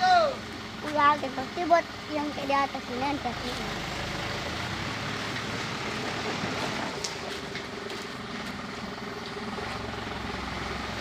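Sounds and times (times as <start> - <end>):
road noise: 0.0 - 11.0
truck engine rumble: 0.0 - 11.0.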